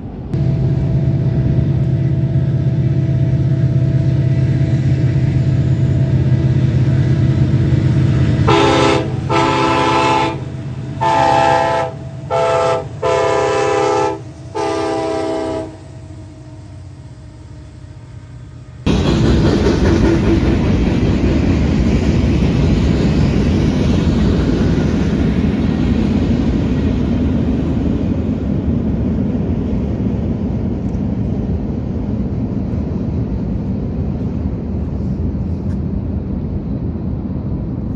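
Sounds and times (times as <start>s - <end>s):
diesel locomotive running: 0.0s - 37.9s
freight train rolling past: 0.0s - 37.9s
train horn blasts: 0.4s - 18.9s.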